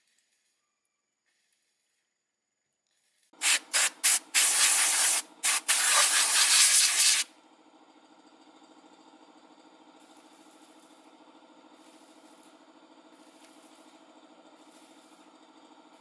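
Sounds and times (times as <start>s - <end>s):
hissing spray bursts: 3.4s - 7.3s.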